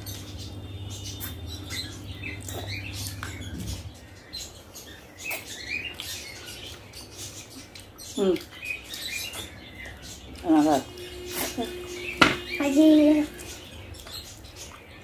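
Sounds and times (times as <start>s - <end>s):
chewing and lip-smacking: 2.2s - 3.7s, 5.2s - 10.5s
short wavering voiced sound: 10.7s - 13.8s.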